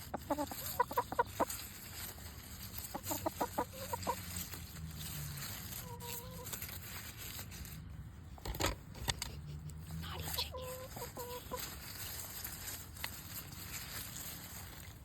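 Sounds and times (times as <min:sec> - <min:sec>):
chickens clucking: 0:00.0 - 0:06.8, 0:08.3 - 0:13.0.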